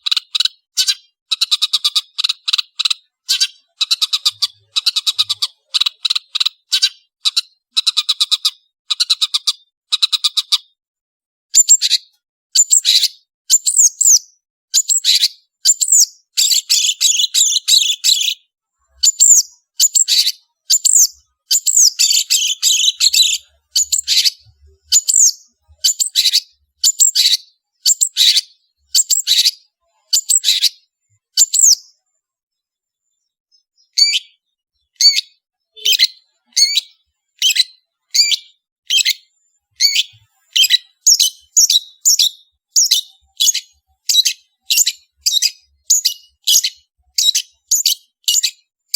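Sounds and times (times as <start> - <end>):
shrike chattering trills: 19.0 - 28.4
shrike sharp whistling calls: 19.0 - 30.8, 35.0 - 48.6.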